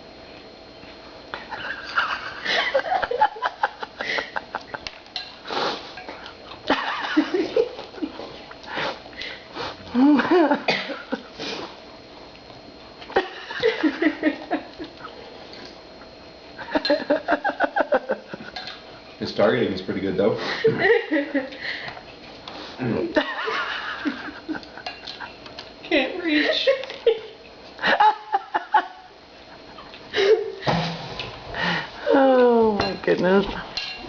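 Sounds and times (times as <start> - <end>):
laughter: 1.4 - 5.0, 6.7 - 8.2, 10.0 - 11.3, 13.1 - 15.1, 16.6 - 18.6, 20.5 - 21.6, 23.0 - 25.4, 26.4 - 30.6
sniffing: 5.4 - 6.4, 8.2 - 10.0, 11.3 - 11.8.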